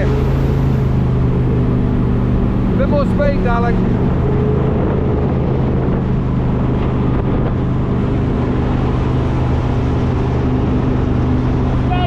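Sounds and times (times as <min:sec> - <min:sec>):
jetboat engine drone: 0:00.0 - 0:12.0
wind buffeting microphone: 0:00.0 - 0:12.0.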